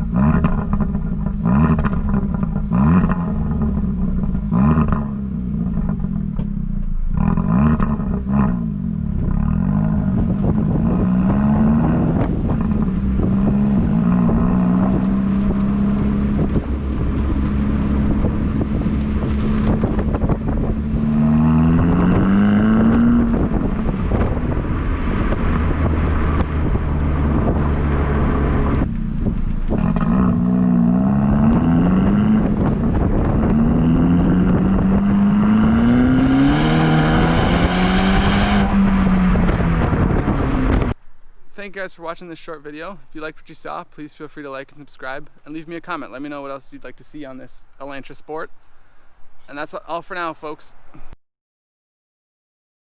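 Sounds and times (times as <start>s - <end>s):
car exhaust under hard acceleration: 0.0s - 41.5s.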